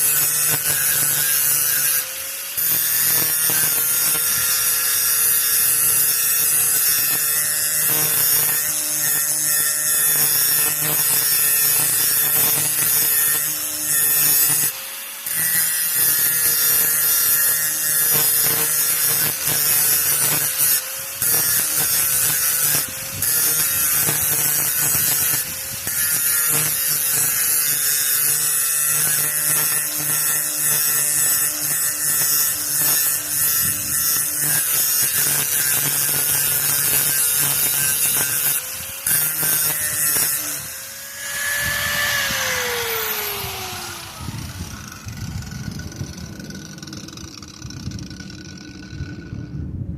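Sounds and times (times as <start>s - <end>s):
harsh grinding on steel: 0.0s - 49.6s
grinder motor whine: 0.0s - 49.9s.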